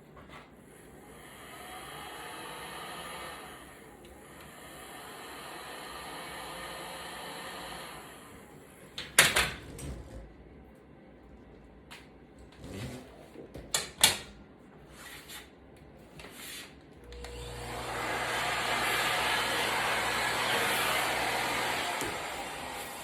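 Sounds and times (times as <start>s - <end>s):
vacuum cleaner running: 0.7s - 8.8s, 17.0s - 23.0s.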